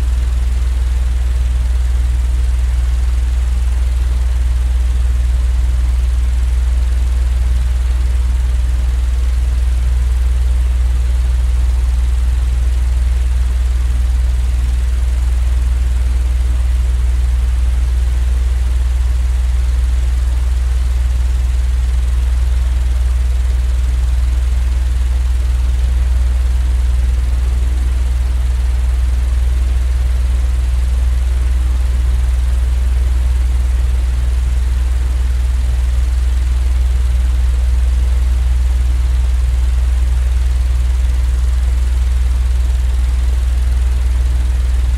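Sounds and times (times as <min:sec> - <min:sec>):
low rumbling noise: 0:43.9 - 0:44.9.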